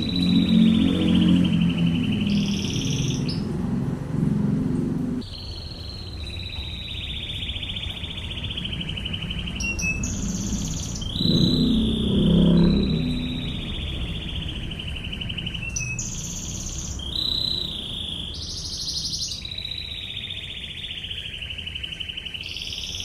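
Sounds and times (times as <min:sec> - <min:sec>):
canary singing rapid trills: 0:00.0 - 0:04.6, 0:05.2 - 0:23.0.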